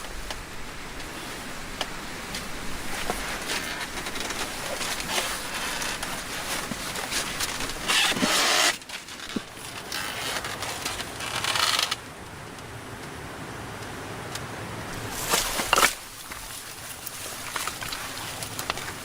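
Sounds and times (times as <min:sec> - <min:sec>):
wood being scraped by hand: 0:01.1 - 0:12.0, 0:15.0 - 0:19.0
small knocks and clicks: 0:15.2 - 0:19.0.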